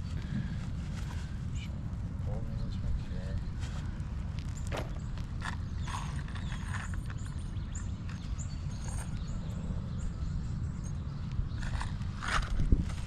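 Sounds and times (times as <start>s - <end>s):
wind rumbling on microphone: 0.0s - 13.0s
taps and scrapes on shingle: 4.4s - 9.4s, 11.3s - 13.0s.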